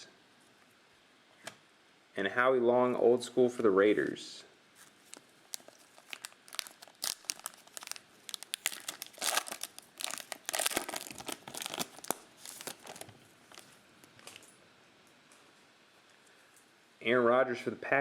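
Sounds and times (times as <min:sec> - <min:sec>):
plastic wrapper tearing and crinkling: 0:04.9 - 0:14.5.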